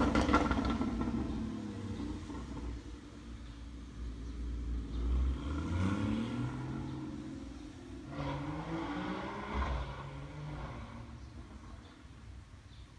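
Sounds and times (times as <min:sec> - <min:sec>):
sports car accelerating: 0:04.2 - 0:12.0.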